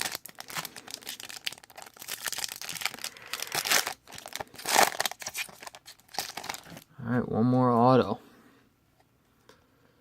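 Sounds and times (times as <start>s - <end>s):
plastic wrapper crinkling and tearing: 0.0s - 6.9s.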